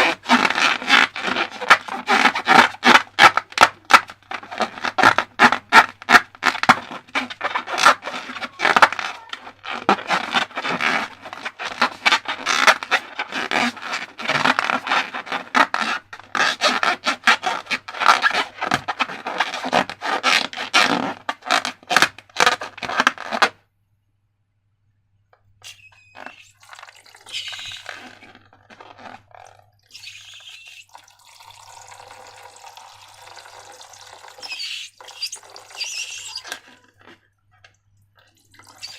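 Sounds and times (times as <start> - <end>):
slime squishing: 0.0 - 23.5, 25.6 - 30.9.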